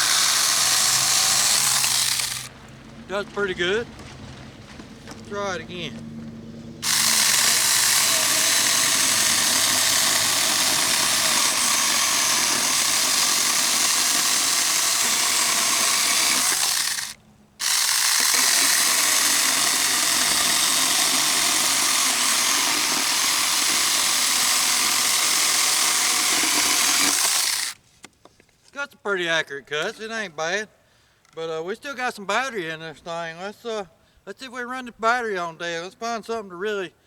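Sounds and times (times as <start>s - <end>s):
chainsaw cutting wood: 0.0s - 2.5s, 6.8s - 27.8s.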